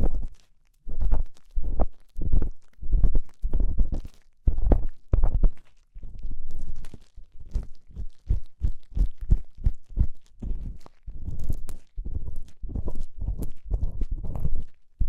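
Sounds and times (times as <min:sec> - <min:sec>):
ear pick scraping microphone: 0:09.3 - 0:14.8.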